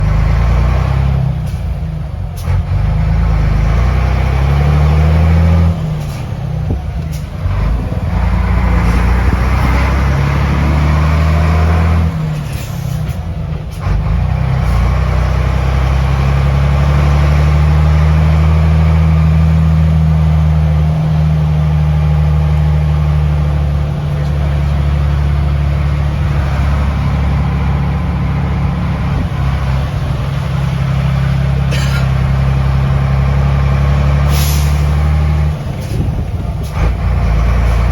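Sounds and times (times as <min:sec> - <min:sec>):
truck diesel engine accelerating: 0:00.0 - 0:37.9.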